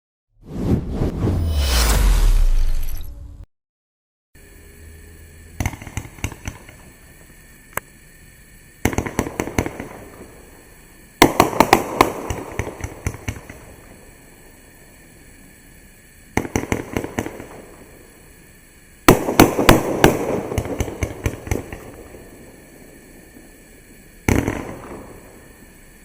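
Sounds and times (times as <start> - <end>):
firework pops and crackle: 5.6 - 6.8, 8.8 - 10.1, 11.2 - 13.8, 16.4 - 17.6, 19.1 - 22.2, 24.2 - 25.2.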